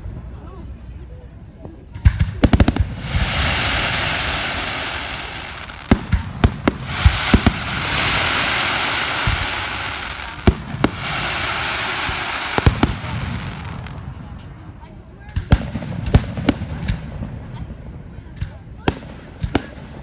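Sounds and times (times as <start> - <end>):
fireworks bangs: 1.9 - 20.0
fireworks hissing: 2.4 - 14.9.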